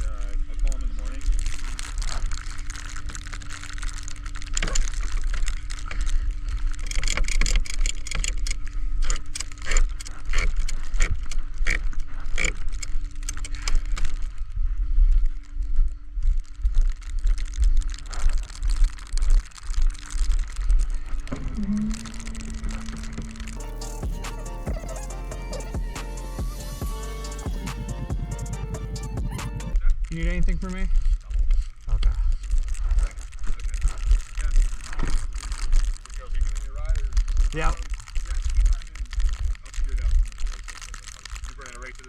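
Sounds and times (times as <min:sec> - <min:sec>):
low rumble and hum: 0:08.0 - 0:29.8.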